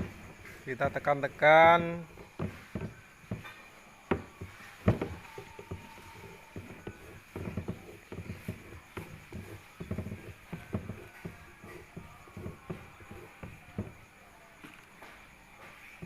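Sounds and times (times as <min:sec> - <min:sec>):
hands patting dough: 0:00.0 - 0:14.2
loud knocks: 0:02.0 - 0:14.0.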